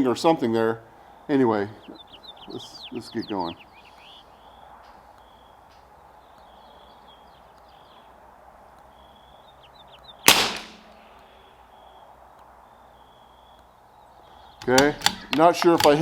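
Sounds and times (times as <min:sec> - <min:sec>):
rifle shot crack: 0:10.2 - 0:11.0.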